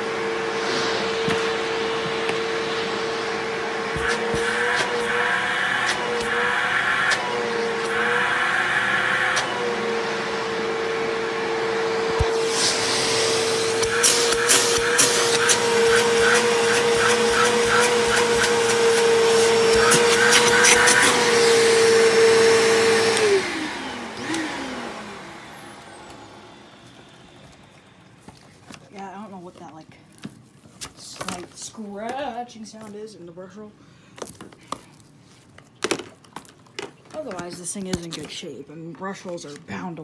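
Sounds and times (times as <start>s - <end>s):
vacuum motor winding down: 0.0s - 28.2s
vacuum cleaner whining: 0.0s - 29.8s.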